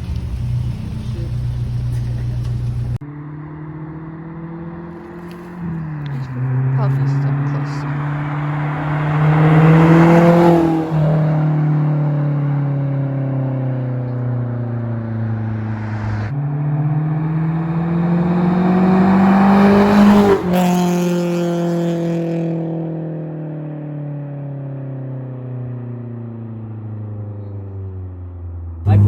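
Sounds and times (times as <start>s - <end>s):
loud engine revving: 0.0s - 3.0s, 4.0s - 12.6s, 15.0s - 22.4s.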